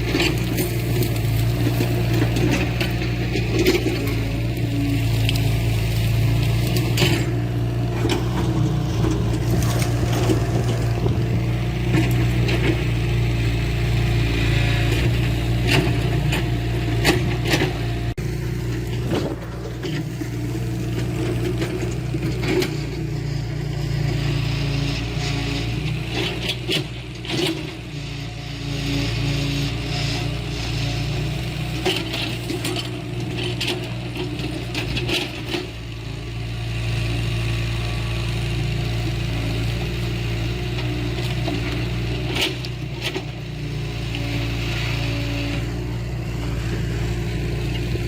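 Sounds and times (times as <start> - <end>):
scraping and knocking of soil: 0.0 - 27.8, 39.3 - 48.0
heavy machinery diesel engine: 0.0 - 48.0.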